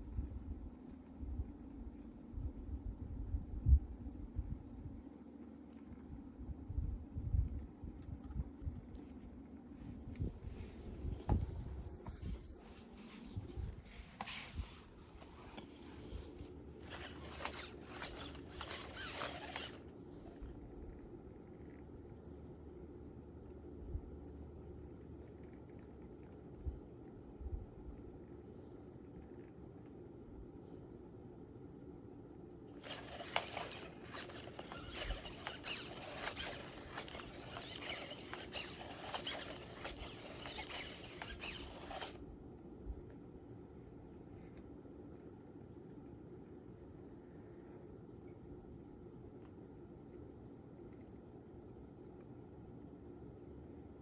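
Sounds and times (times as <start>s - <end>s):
scratching and rubbing strokes: 12.1s - 19.9s, 32.8s - 42.2s.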